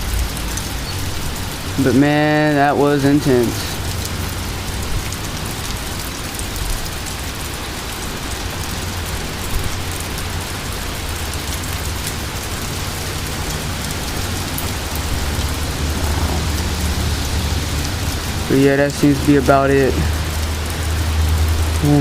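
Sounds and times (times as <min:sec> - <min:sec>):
steady rain: 0:00.0 - 0:22.0
wind rumbling on microphone: 0:11.0 - 0:21.8.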